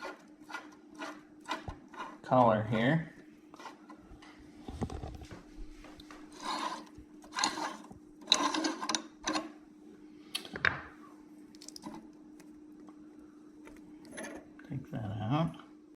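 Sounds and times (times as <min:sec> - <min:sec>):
faint steady hum: 0:00.0 - 0:16.0
metal parts scraping and clattering: 0:06.3 - 0:09.5, 0:14.1 - 0:14.5.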